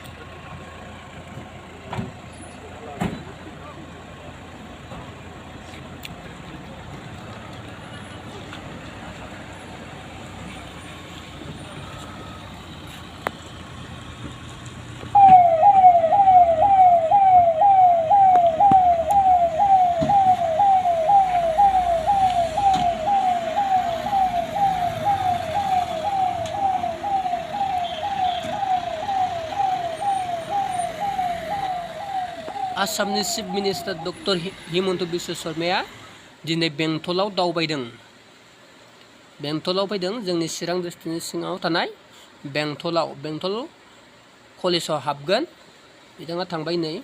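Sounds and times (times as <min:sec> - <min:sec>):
low background noise: 0:00.0 - 0:47.0
electronic siren yelping: 0:15.1 - 0:34.6.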